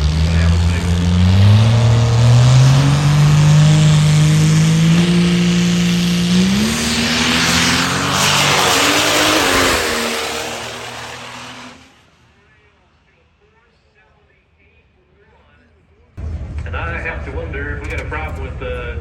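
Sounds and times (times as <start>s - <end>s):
diesel truck engine at full throttle: 0.0s - 12.2s.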